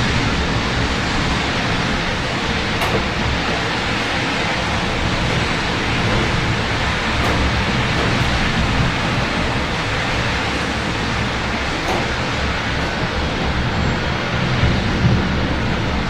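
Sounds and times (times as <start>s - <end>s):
city traffic rumble: 0.0s - 16.0s.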